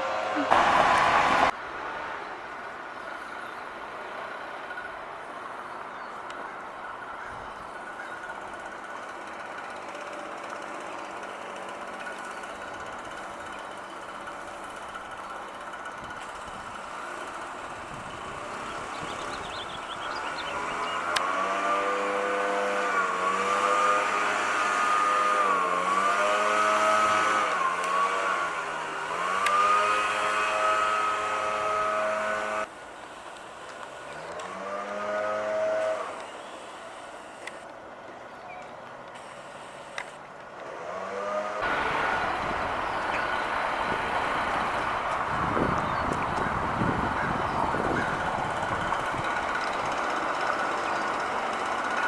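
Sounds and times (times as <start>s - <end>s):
vehicle engine revving: 0.0s - 1.6s, 11.3s - 32.7s, 34.0s - 36.7s, 40.6s - 52.0s.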